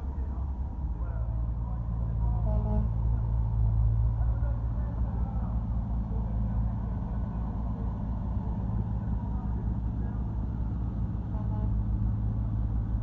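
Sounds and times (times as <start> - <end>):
diesel truck engine idling: 0.0 - 2.4.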